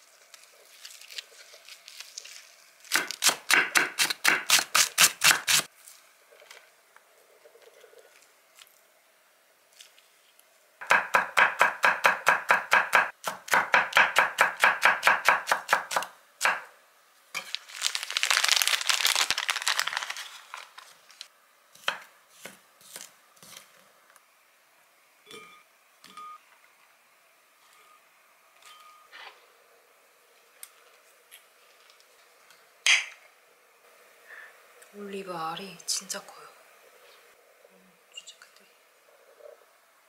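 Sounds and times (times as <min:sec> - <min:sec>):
plastic package crinkling: 0:00.3 - 0:03.0, 0:17.4 - 0:21.3
knife chopping on wooden board: 0:10.8 - 0:16.6.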